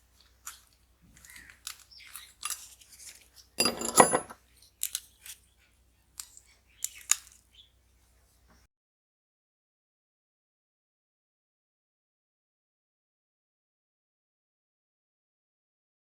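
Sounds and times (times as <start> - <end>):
small parts and tools clinking: 0.2 - 5.4, 6.2 - 7.5
clatter of parts: 1.2 - 5.4.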